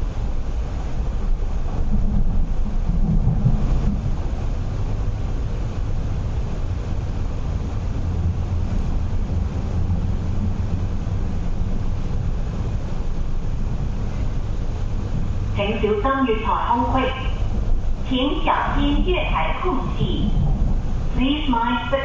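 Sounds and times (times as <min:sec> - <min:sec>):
train rumbling inside carriage: 0:00.0 - 0:22.0.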